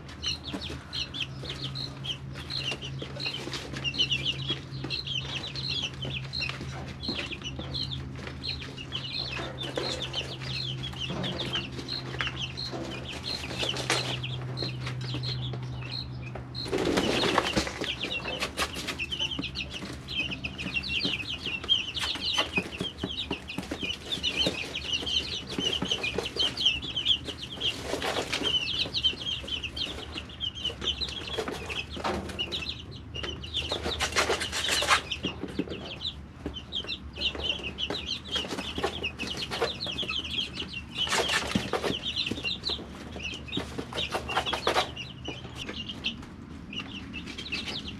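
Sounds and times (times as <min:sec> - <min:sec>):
chicks peeping: 0:00.0 - 0:47.9
rustling and flapping: 0:16.6 - 0:19.1.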